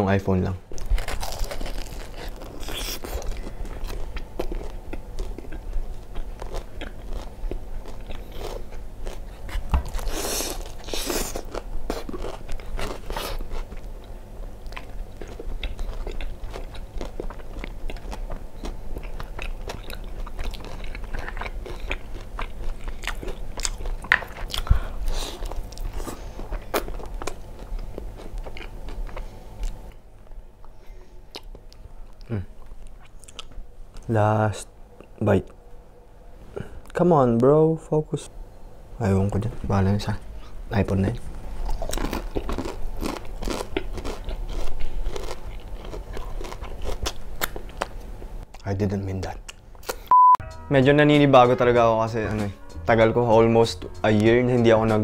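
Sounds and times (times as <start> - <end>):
crunchy chewing of fried chicken: 0.8 - 29.9, 41.4 - 48.6.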